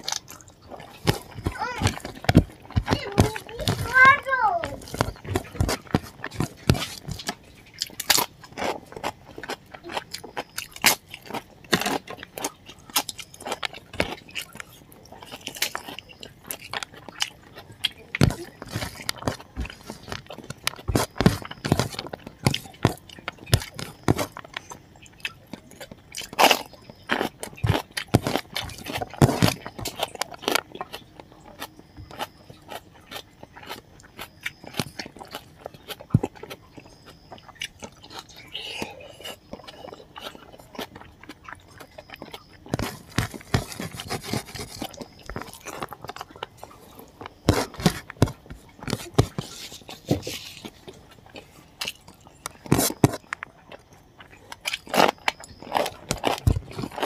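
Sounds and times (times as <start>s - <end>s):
crunching and chewing food: 0.0s - 57.0s.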